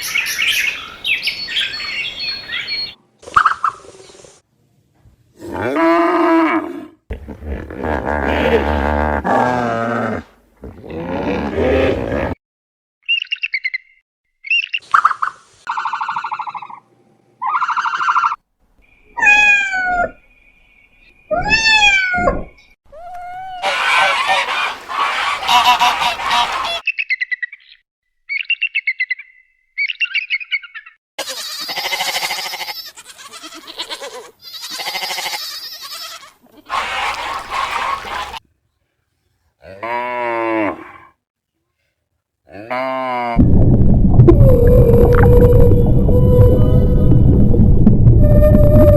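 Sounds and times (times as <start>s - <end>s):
birds chirping: 0.0s - 3.0s, 23.6s - 27.0s, 36.7s - 38.4s
fowl honking: 23.6s - 26.8s, 36.7s - 38.4s.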